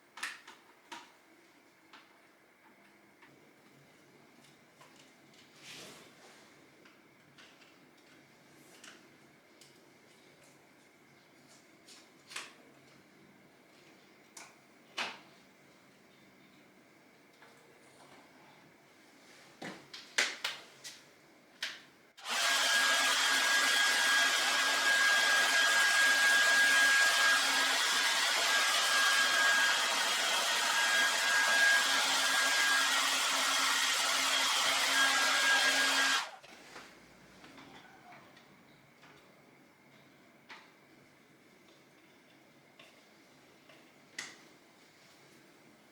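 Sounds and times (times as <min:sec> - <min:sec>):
hot-air blower hissing: 0:22.2 - 0:36.4.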